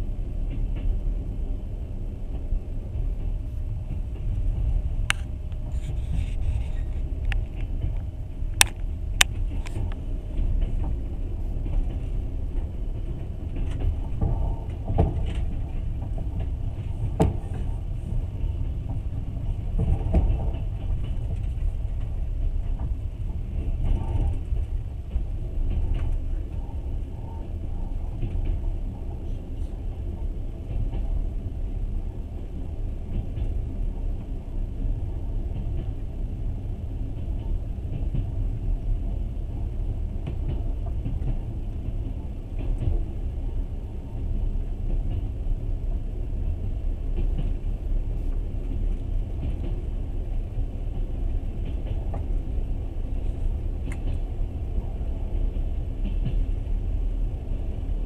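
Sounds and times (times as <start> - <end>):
train rumbling inside carriage: 0.0 - 58.0
sharp clicks and knocks: 7.2 - 10.0.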